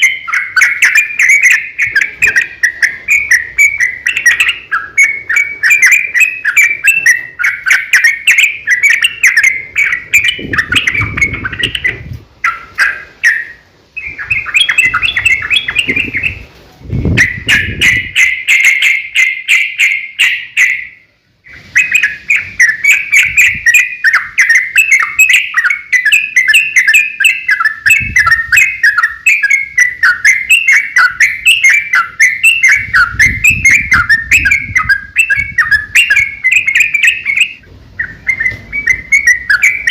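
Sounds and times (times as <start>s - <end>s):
bulbul singing chattering notes: 0.0s - 39.9s.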